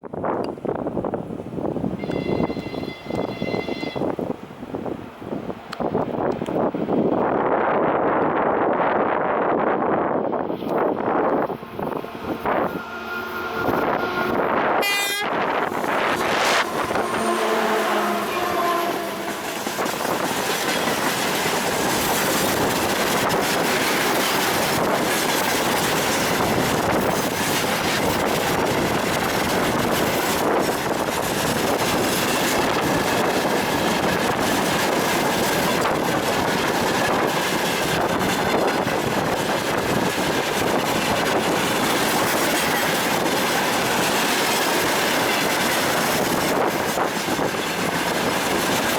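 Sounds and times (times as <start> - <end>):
diesel locomotive passing: 0.6 - 48.9
locomotive horn: 2.0 - 4.1, 11.6 - 20.2
train wheels clattering: 10.6 - 48.9.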